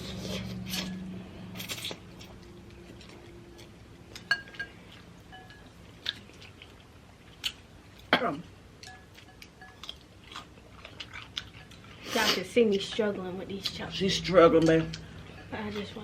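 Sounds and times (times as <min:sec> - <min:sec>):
person chewing noodles: 0:00.0 - 0:08.1, 0:08.8 - 0:13.0
chopsticks clinking against bowl: 0:04.2 - 0:05.7.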